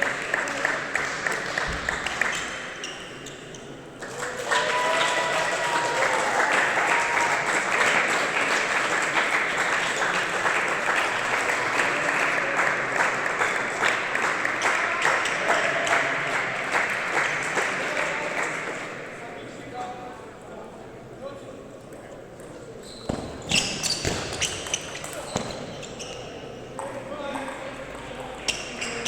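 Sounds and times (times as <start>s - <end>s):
spectators applauding: 0.0s - 2.3s, 4.0s - 18.9s.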